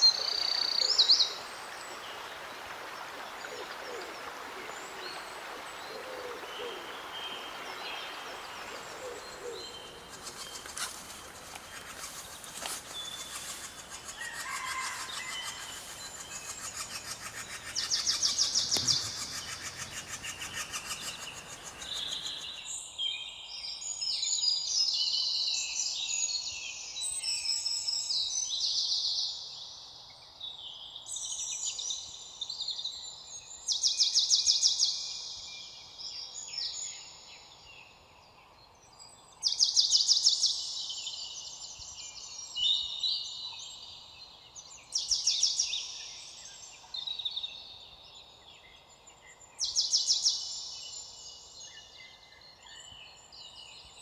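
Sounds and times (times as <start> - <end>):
songbirds singing: 7.3 - 22.7
steady hiss: 8.8 - 22.6.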